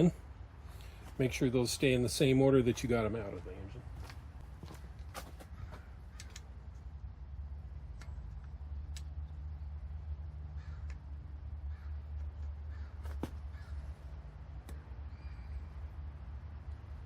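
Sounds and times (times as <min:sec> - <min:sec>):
low hum: 0:03.4 - 0:17.0
crows cawing: 0:05.4 - 0:06.4, 0:10.5 - 0:14.1.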